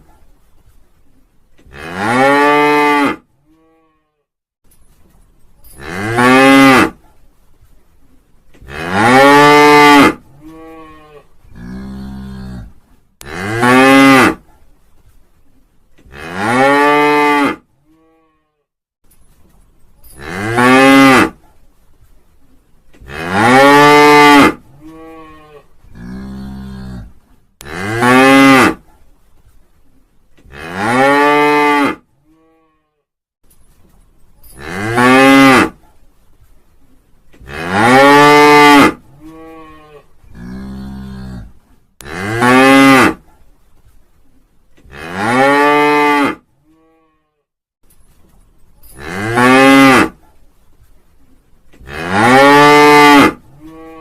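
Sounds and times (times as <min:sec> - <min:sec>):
lower rougher moo: 0:37.4 - 0:43.2, 0:51.8 - 0:54.0.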